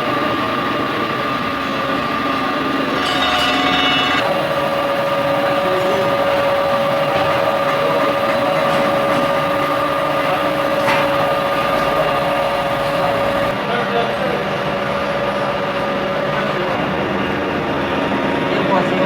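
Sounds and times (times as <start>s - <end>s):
grinding machine whine and hiss: 0.0s - 19.0s.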